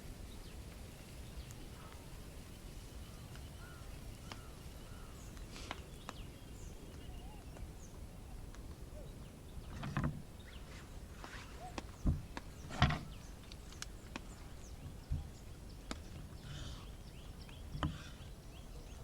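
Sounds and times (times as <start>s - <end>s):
campfire crackling and popping: 13.3s - 14.4s.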